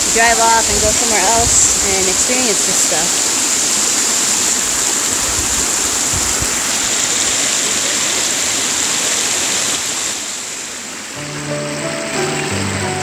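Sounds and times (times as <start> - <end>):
waterfall rushing: 0.0 - 13.0
music: 11.2 - 13.0.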